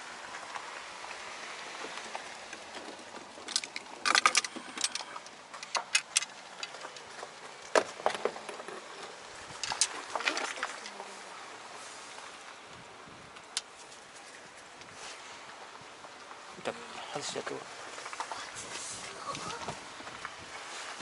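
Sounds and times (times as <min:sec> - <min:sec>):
steady outdoor hiss: 0:00.0 - 0:21.0
sharp clicks and rattles: 0:02.0 - 0:10.8.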